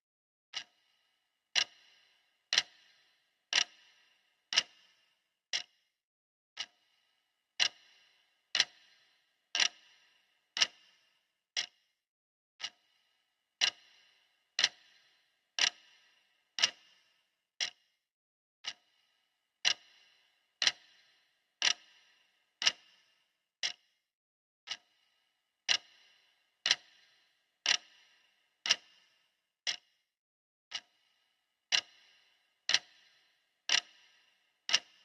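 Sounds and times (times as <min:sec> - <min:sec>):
clock ticking: 0:00.5 - 0:05.7, 0:06.6 - 0:06.9, 0:07.6 - 0:11.8, 0:12.6 - 0:13.0, 0:13.6 - 0:17.8, 0:18.6 - 0:19.0, 0:19.6 - 0:23.8, 0:24.7 - 0:29.9, 0:30.7 - 0:31.1, 0:31.7 - 0:35.0.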